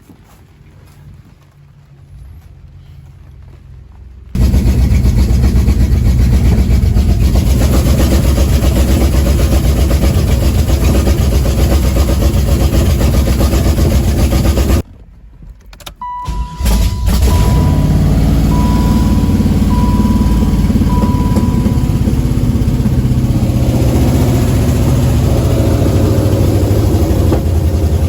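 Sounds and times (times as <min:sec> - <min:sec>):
car engine running: 0:04.4 - 0:14.8, 0:16.2 - 0:28.0
high beep: 0:16.0 - 0:23.1.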